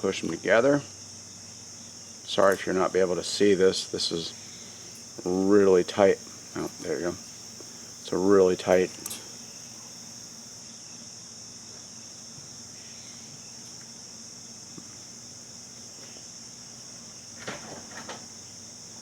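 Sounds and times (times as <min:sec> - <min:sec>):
faint low hum: 0:00.0 - 0:10.7
insects chirring: 0:00.0 - 0:19.0
handling rustles: 0:04.3 - 0:10.0.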